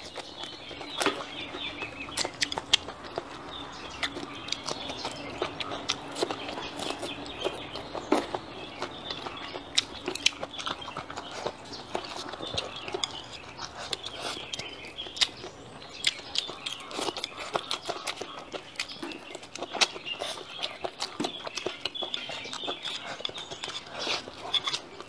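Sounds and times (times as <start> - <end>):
lip-smacking: 0.0 - 25.0
wet chewing: 0.0 - 25.0
slurping: 16.4 - 25.0.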